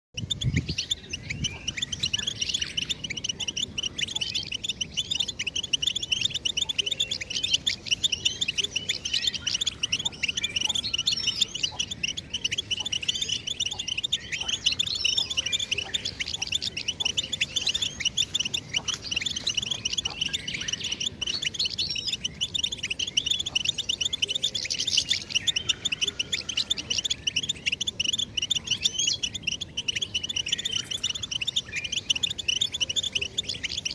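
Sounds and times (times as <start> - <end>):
goldfinch twittering song: 0.2 - 33.9.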